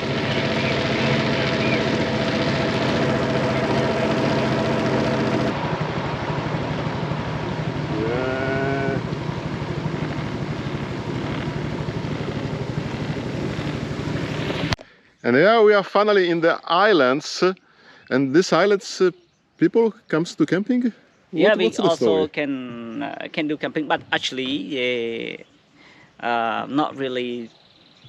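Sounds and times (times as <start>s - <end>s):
motorboat engine droning: 0.0s - 15.4s.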